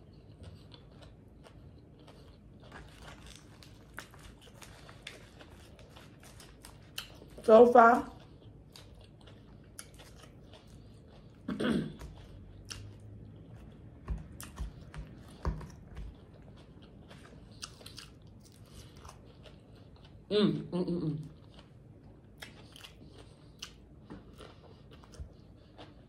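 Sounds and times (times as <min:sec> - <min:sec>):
lettuce crunching: 0:00.2 - 0:07.5, 0:08.2 - 0:20.1.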